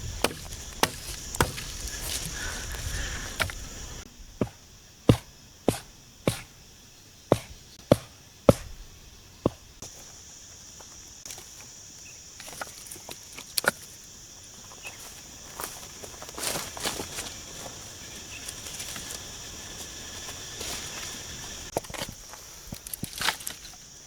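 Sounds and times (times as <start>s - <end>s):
sharp knocks: 0.2s - 1.9s.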